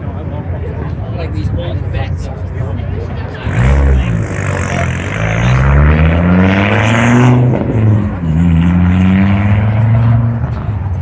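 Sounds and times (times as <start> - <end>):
car engine revving: 3.2 - 11.0.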